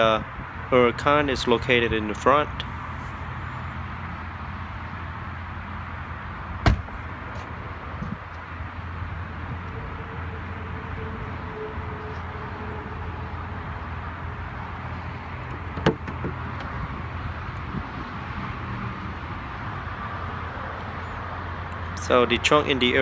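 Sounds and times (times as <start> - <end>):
trunk lid click: 6.6 - 7.0, 15.5 - 16.8.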